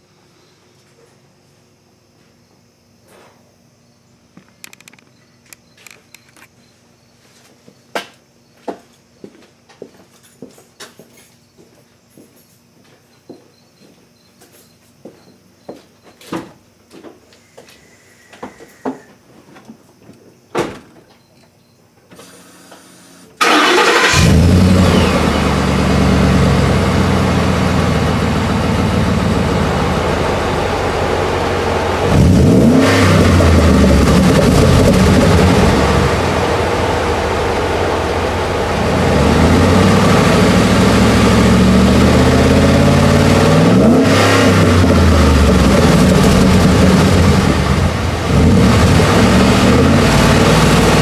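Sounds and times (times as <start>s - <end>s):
engine starting and idling: 22.2s - 30.0s
engine revving: 23.4s - 51.0s.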